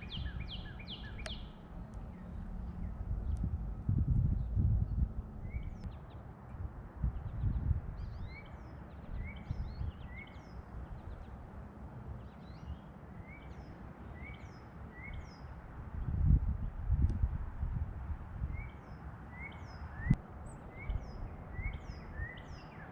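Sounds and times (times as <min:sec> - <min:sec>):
low rumbling noise: 0:00.0 - 0:05.9
bird chirp: 0:00.0 - 0:06.2, 0:07.1 - 0:11.4, 0:12.2 - 0:16.1, 0:18.5 - 0:22.9.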